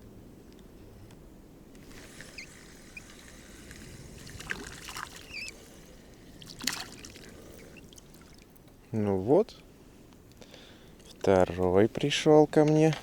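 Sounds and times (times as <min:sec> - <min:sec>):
water trickling and splashing: 0:02.4 - 0:08.7
bird chirps: 0:05.2 - 0:05.6.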